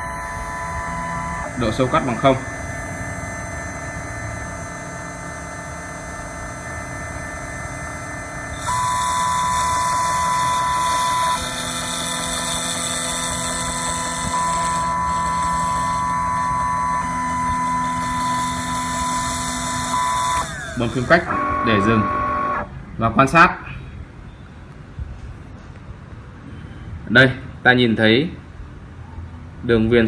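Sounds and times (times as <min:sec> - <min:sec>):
cutting machine motors whining: 0:00.0 - 0:22.7.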